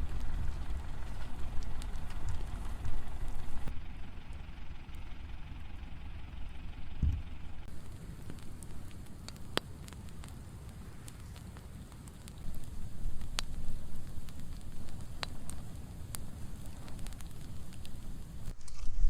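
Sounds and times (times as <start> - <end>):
brush fire crackling: 0.0 - 19.0
tractor engine rumbling: 0.0 - 19.0
low thump: 7.0 - 7.3.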